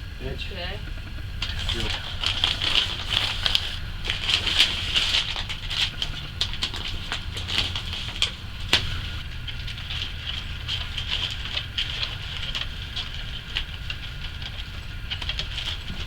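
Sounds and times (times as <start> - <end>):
steady low hum: 0.0 - 16.0
pipe crinkling and clicking: 0.8 - 16.0.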